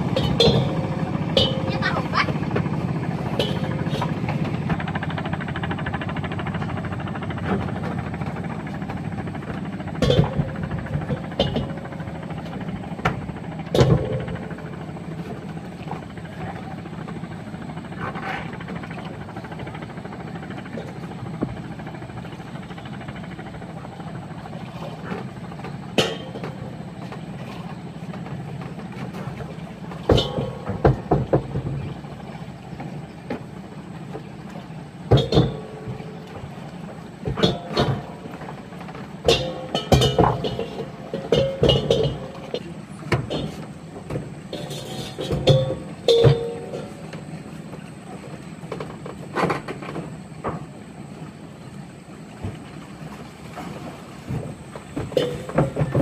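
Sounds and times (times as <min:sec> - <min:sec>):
vehicle rumbling: 0:00.0 - 0:22.2
sharp knocks and clunks: 0:30.0 - 0:31.9, 0:35.1 - 0:36.0, 0:39.2 - 0:47.0.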